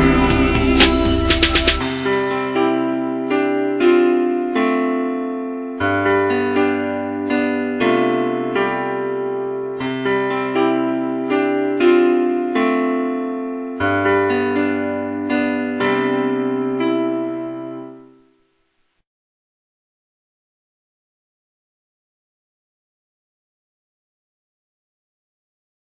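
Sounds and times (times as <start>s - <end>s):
electric piano slow chords: 0.0s - 18.1s.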